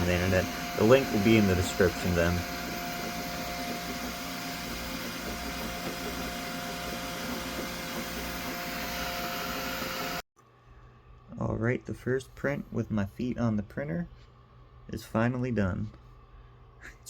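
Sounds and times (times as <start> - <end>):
printer fans whirring: 0.0 - 10.2.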